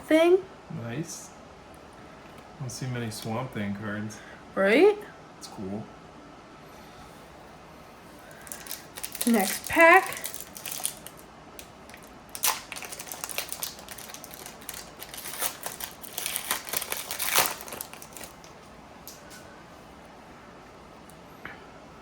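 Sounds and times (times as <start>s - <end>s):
wrapper tearing and crinkling: 8.4s - 11.3s, 11.9s - 18.5s.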